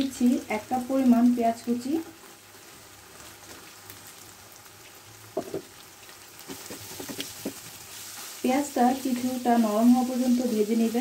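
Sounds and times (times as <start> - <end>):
food sizzling in a frying pan: 0.0 - 11.0
wooden spatula scraping a pan: 6.5 - 11.0.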